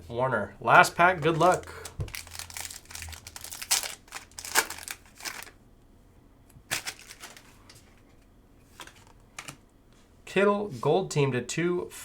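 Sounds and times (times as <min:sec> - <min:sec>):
wrapper tearing and crinkling: 0:01.2 - 0:05.6, 0:06.7 - 0:07.5.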